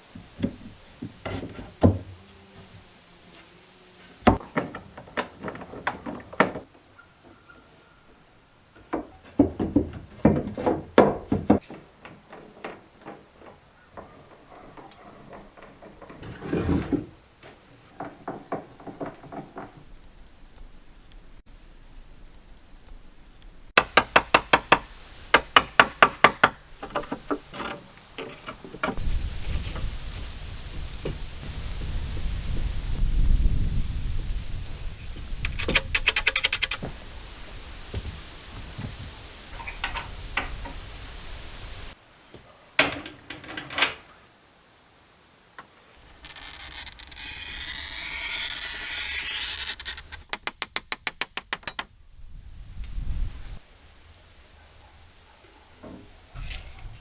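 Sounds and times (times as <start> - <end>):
wooden knocks: 8.8 - 17.1, 18.0 - 19.9, 23.8 - 29.0.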